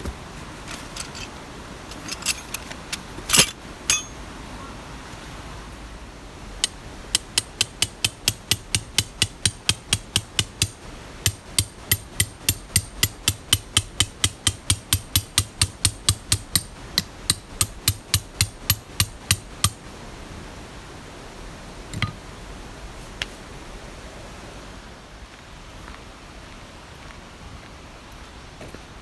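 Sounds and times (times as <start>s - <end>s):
hammer striking: 3.3s - 4.2s, 6.6s - 19.8s.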